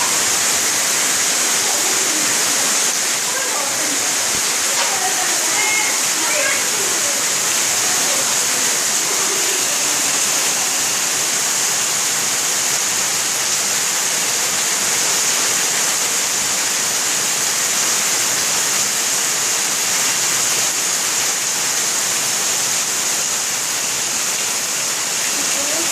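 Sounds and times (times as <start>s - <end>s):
heavy rain pouring: 0.0s - 25.9s.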